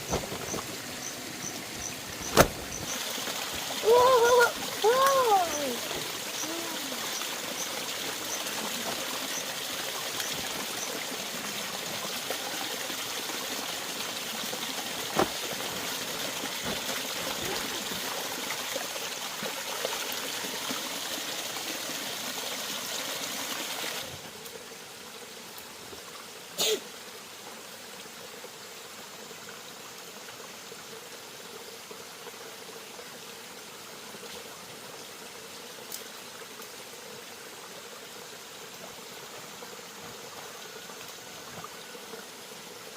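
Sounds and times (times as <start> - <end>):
running water trickling: 0.0 - 26.4.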